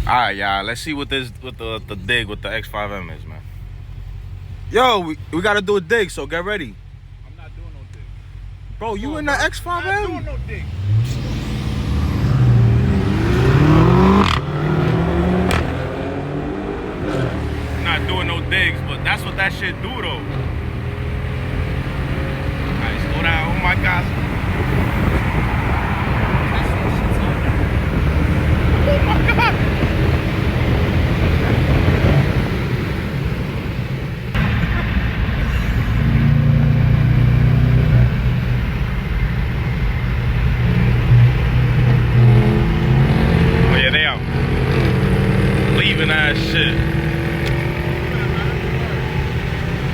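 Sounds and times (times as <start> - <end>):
car engine accelerating hard: 0.0 - 49.9
sharp crack at gear shift: 15.4 - 15.8, 47.4 - 47.7.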